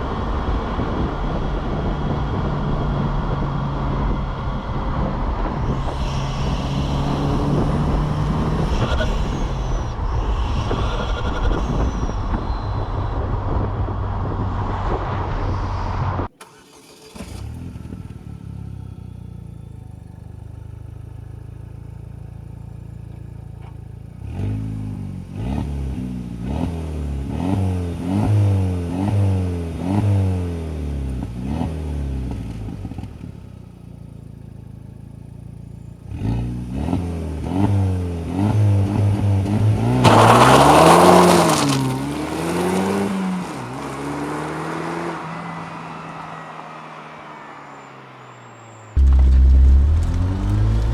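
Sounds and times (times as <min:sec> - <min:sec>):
loud driving noise: 0:00.0 - 0:19.4, 0:31.2 - 0:50.9
car engine revving: 0:00.0 - 0:50.9
rushing sound: 0:05.2 - 0:16.3, 0:49.0 - 0:50.9.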